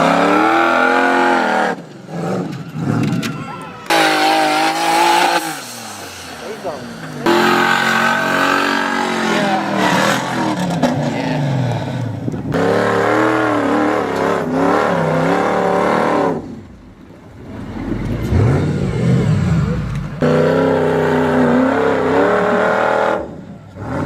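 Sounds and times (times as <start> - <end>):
off-road engines revving hard: 0.0 - 24.0
low engine rumble: 5.4 - 12.9, 16.3 - 20.3.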